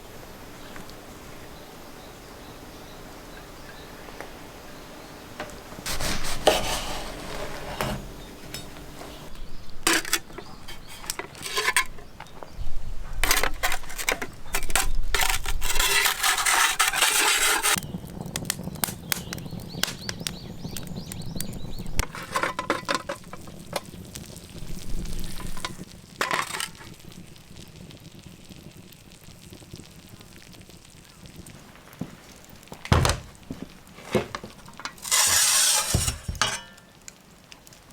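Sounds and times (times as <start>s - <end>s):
sizzling: 0.0s - 37.9s
utensils clinking against a pan: 5.9s - 12.6s, 13.2s - 17.8s, 22.0s - 24.0s, 25.1s - 27.0s, 34.1s - 37.0s.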